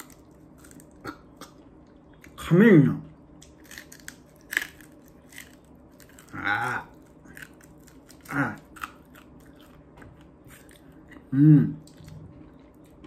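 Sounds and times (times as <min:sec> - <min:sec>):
biting and crunching bony food: 0:00.0 - 0:02.4, 0:03.4 - 0:13.0.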